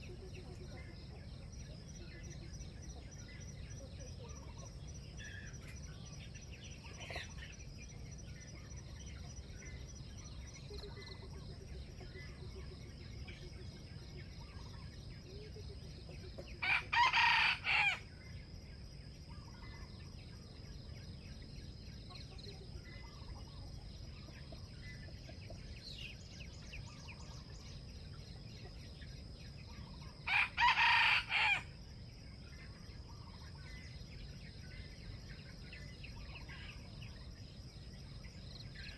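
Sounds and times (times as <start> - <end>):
faint small bird chirps: 0.0 - 16.8, 19.1 - 31.6, 32.2 - 38.9
rooster crowing: 16.6 - 18.0, 30.3 - 31.7.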